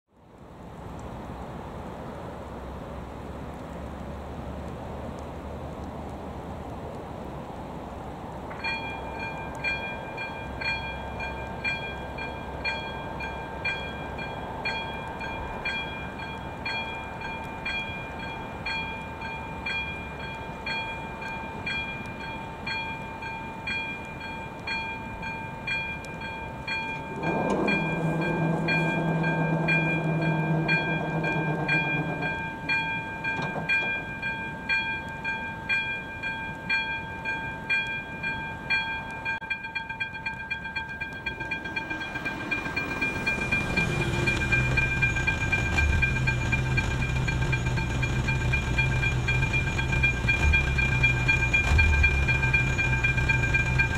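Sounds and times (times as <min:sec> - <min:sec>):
level crossing warning bell: 0:08.6 - 0:53.9
train horn: 0:27.1 - 0:32.4.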